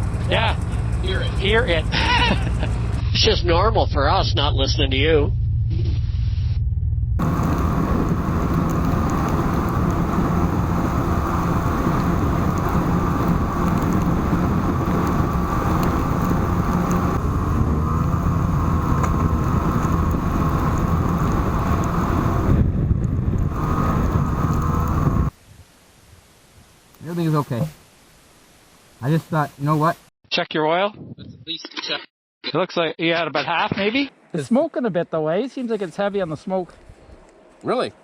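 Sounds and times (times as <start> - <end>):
snowmobile engine running: 0.0 - 3.4, 7.2 - 25.3
wind noise on microphone: 7.2 - 26.8, 30.9 - 31.5.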